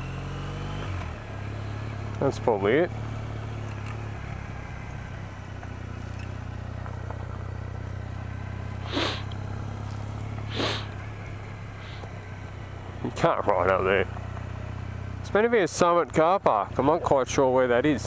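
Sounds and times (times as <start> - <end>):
motorcycle engine running: 0.0 - 18.0
short rushing bursts of noise: 8.8 - 9.3, 10.5 - 11.0.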